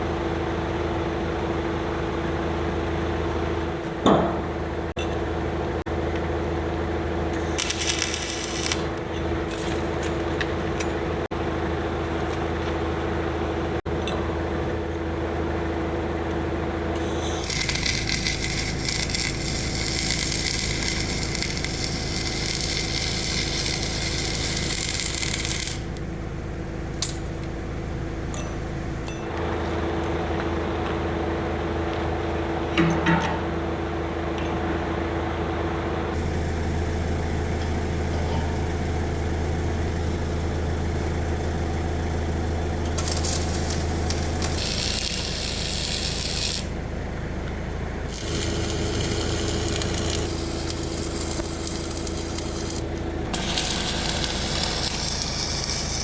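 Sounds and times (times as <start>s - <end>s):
machine hum: 4.4s - 31.9s, 35.2s - 56.0s
harsh hissing metalwork: 7.4s - 10.4s, 17.0s - 29.1s, 36.2s - 47.2s, 48.0s - 56.0s.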